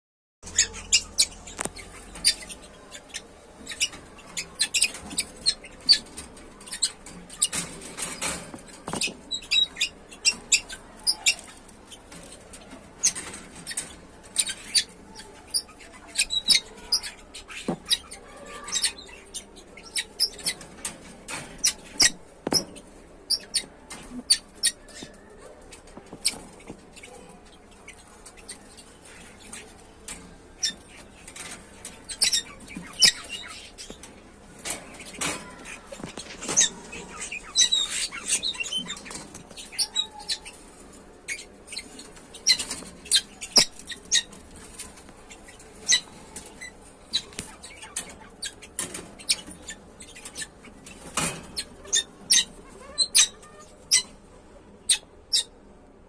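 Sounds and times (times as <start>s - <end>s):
budgerigars chirping: 0.4s - 7.6s, 8.6s - 12.4s, 30.6s - 34.1s, 34.9s - 54.2s.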